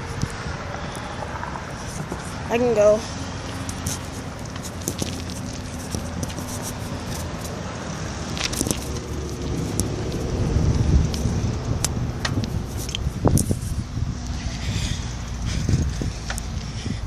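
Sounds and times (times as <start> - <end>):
wind and road noise: 0.0 - 17.0
bicycle clicks and rattles: 3.4 - 7.6, 8.2 - 17.0.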